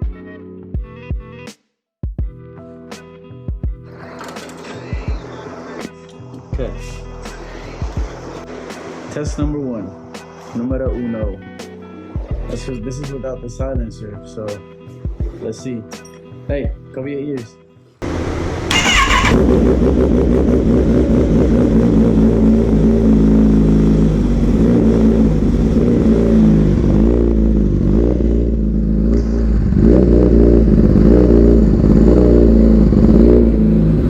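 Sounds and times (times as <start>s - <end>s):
motorcycle engine revving: 18.0s - 34.0s.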